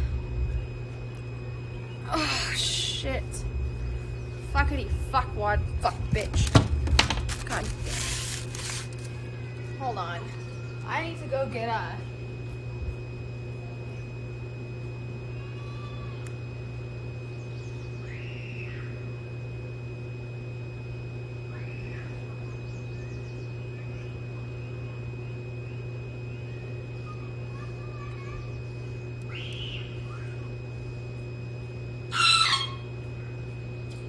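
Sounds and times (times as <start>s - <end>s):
steady low hum: 0.0s - 34.0s
birds whistling calls: 28.4s - 30.4s, 32.1s - 32.9s.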